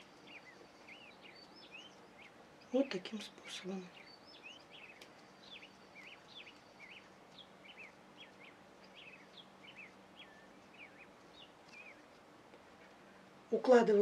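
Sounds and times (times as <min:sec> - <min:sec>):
faint small bird chirping: 0:00.0 - 0:12.2
low steady hum: 0:00.0 - 0:14.0.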